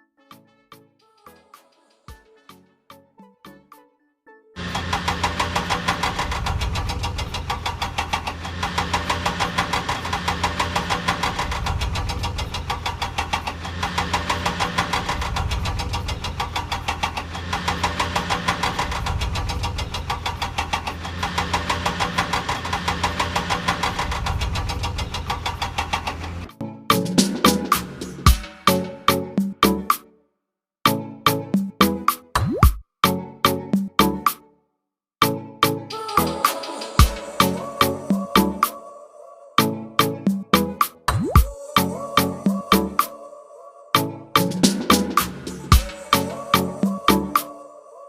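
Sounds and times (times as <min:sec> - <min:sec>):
engine idling with fast knocking: 0:04.6 - 0:26.5.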